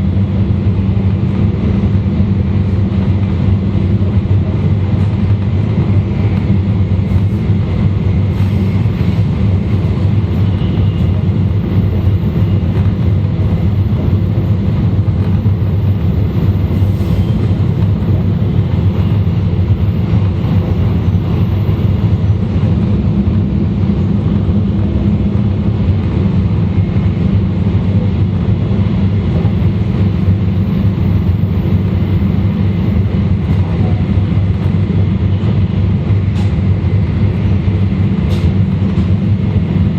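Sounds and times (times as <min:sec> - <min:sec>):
train running rumble: 0:00.0 - 0:39.9.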